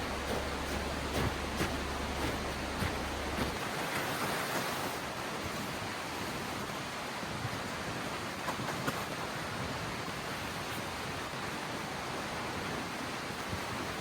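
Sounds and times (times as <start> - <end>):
stream flowing: 0.0 - 7.2.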